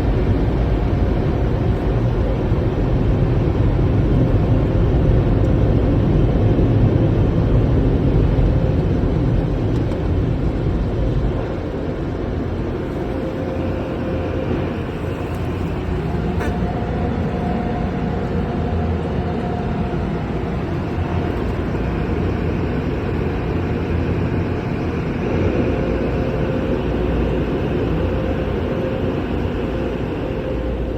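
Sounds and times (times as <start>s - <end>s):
car wash machinery rumbling: 0.0s - 30.9s.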